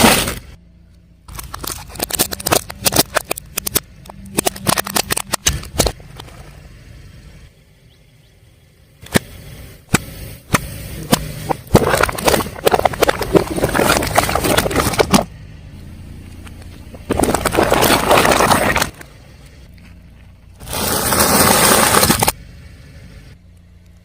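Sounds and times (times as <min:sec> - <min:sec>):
tyre crushing crunchy objects: 0:00.0 - 0:00.6, 0:01.3 - 0:06.5, 0:09.9 - 0:15.4, 0:16.6 - 0:19.2, 0:20.6 - 0:22.4
car engine hum: 0:00.0 - 0:24.0.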